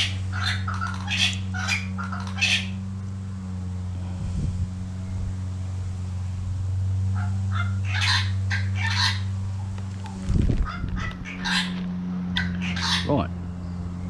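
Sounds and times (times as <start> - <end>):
harsh bird calls: 0.0 - 2.8, 7.2 - 9.4, 10.2 - 14.0
steady low hum: 0.0 - 14.0.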